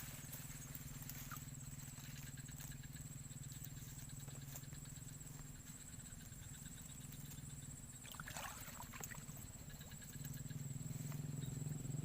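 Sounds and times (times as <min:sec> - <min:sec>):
insect whine: 0:00.0 - 0:12.0
low steady hum: 0:00.0 - 0:12.0.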